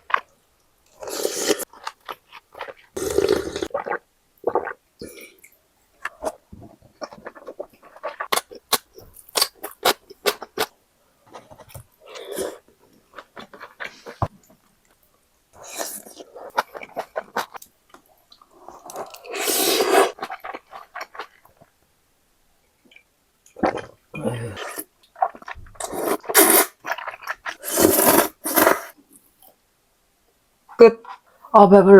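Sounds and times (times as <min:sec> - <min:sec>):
wet chewing and crunching: 0:06.0 - 0:10.7, 0:15.6 - 0:17.7, 0:20.1 - 0:21.7, 0:25.0 - 0:27.6.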